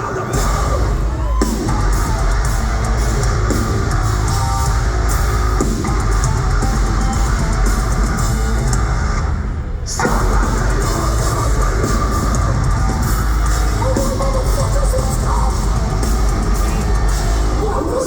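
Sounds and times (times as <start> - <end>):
metalcore band playing live: 0.0 - 18.0.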